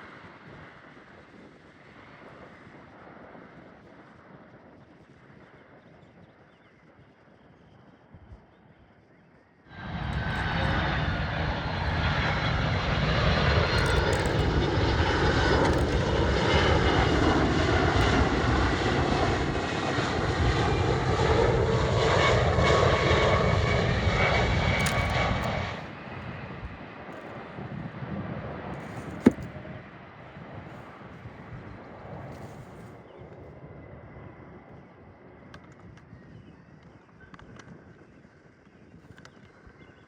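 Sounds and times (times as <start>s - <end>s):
jet airliner engines roaring: 9.7s - 36.4s.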